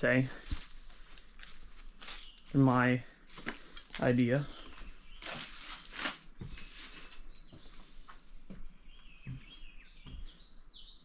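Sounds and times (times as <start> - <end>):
soft footsteps: 0.0 - 10.5
small birds chirping: 0.0 - 11.0
rustle of brush: 0.3 - 3.7, 4.8 - 7.3.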